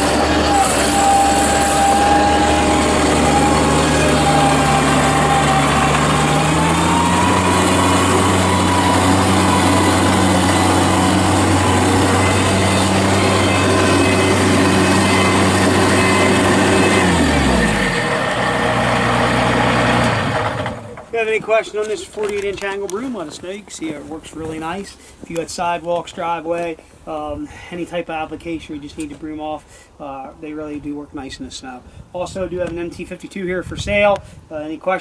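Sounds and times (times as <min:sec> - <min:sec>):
loader diesel engine running hard: 0:00.0 - 0:21.1
hydraulic broom whine: 0:00.0 - 0:22.3.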